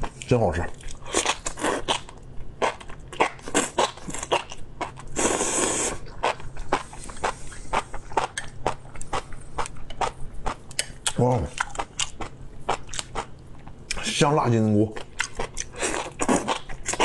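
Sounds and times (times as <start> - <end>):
loud slurp: 5.2 - 6.0.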